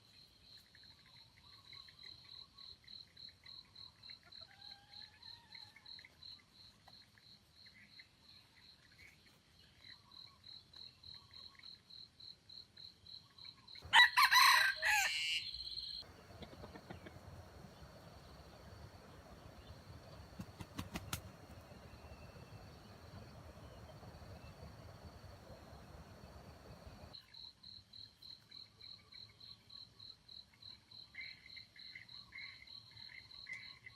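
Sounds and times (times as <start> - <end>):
rooster crowing: 13.8 - 17.1
insects trilling: 13.8 - 27.2.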